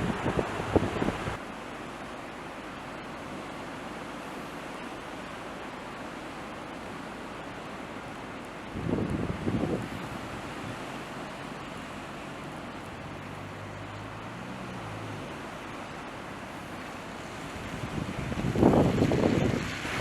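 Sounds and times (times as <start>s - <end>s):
blizzard wind buffeting microphone: 0.0s - 1.4s, 8.6s - 11.4s, 12.8s - 20.0s.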